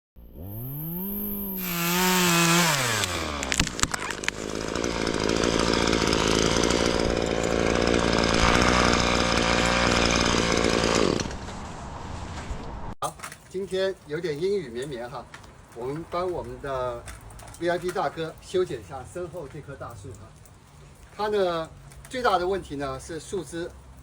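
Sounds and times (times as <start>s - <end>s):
chainsaw cutting wood: 0.2s - 11.6s.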